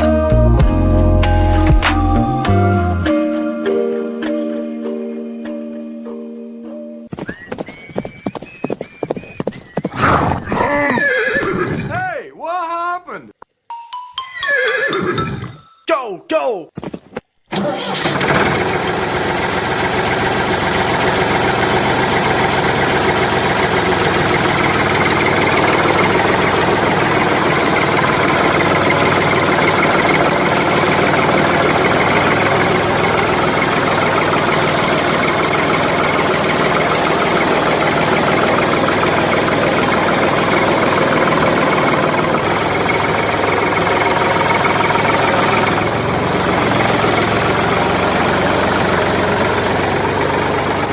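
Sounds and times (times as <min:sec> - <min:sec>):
miniature diesel engine idling: 0:17.5 - 0:50.9.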